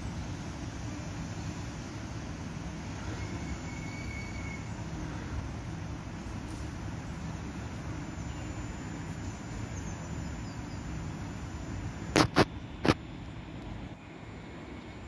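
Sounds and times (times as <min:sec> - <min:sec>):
train rumbling: 0:00.0 - 0:15.0
faint high squeal: 0:03.0 - 0:04.8.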